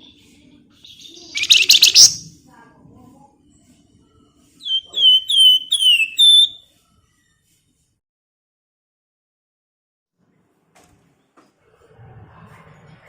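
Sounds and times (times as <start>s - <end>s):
songbird chattering and whistling: 1.0s - 2.3s, 4.6s - 6.6s.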